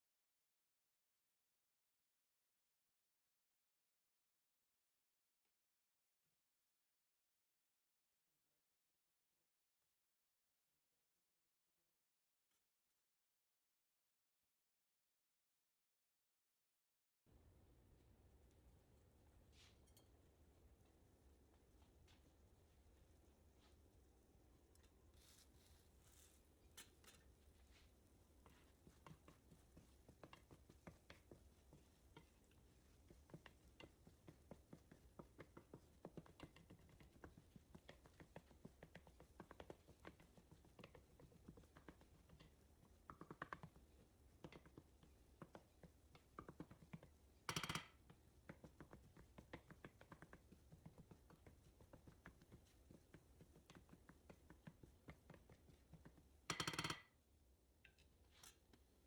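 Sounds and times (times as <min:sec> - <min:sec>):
kitchen clatters: 0:54.7 - 0:57.1.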